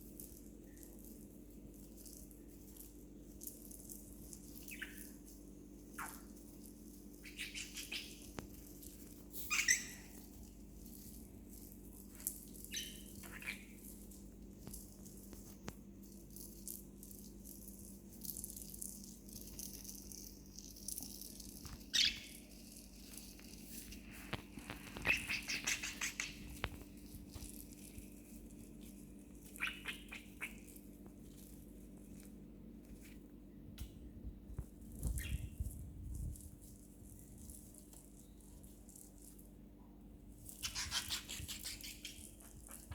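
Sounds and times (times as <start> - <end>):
budgerigar chirping: 4.7 - 5.1, 6.0 - 6.2, 7.2 - 8.3, 9.4 - 10.1, 12.7 - 13.7, 21.9 - 22.4, 25.0 - 26.4, 29.5 - 30.7, 40.6 - 42.8.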